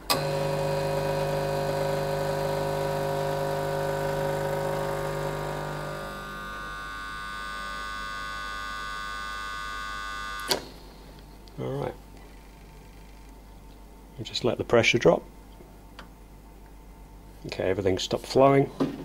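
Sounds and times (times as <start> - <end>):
espresso machine pump humming: 0.0 - 10.5.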